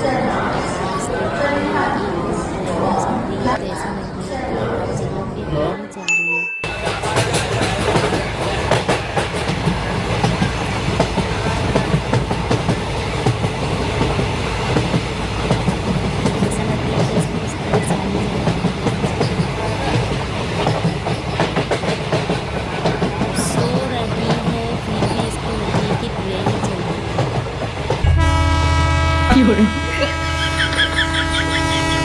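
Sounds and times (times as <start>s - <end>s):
train rumbling: 6.7s - 32.0s.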